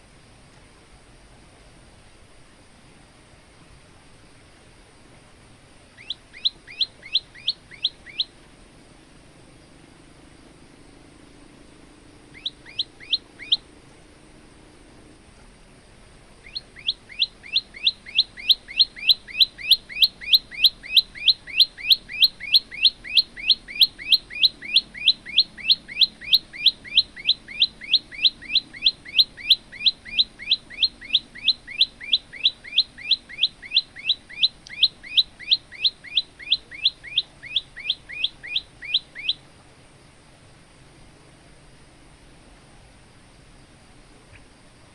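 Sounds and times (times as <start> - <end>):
bird chip notes: 12.3 - 13.7.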